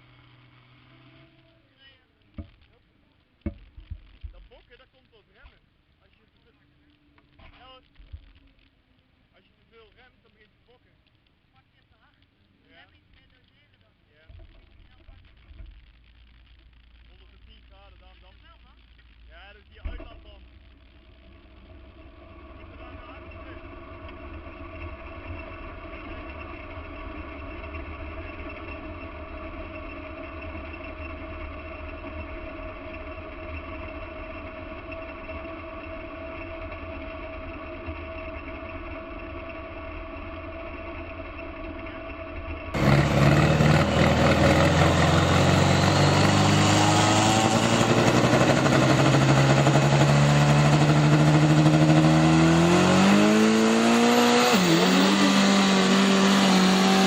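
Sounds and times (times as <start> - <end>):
loud engine climbing in pitch: 0.0 - 1.5, 21.3 - 57.0
muffled engine running: 0.0 - 2.7, 14.3 - 57.0.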